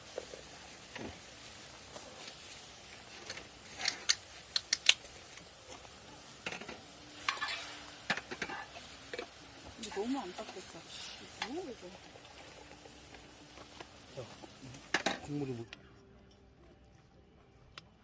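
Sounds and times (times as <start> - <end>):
cutlery clinking on dishes: 6.4 - 9.3.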